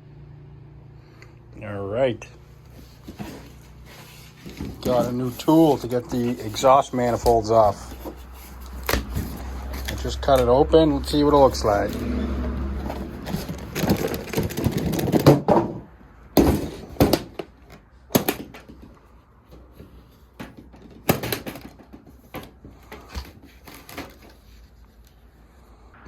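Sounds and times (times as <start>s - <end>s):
cardboard packing rustling: 2.6s - 15.8s, 19.6s - 25.2s
objects knocking and clacking: 11.4s - 24.4s.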